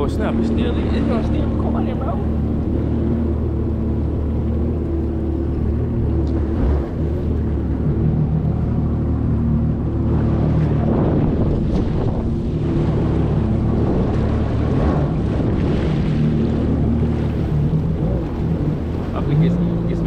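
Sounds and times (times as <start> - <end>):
jet ski engine running: 0.0 - 20.0
rushing water: 0.0 - 20.0
wind on microphone: 0.0 - 20.0.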